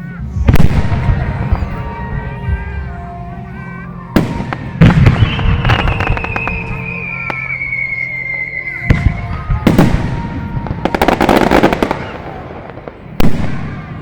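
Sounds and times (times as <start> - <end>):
fireworks bangs: 0.4 - 2.8, 4.1 - 14.0
falling whistle: 3.6 - 12.1
crackling pops: 4.2 - 7.6.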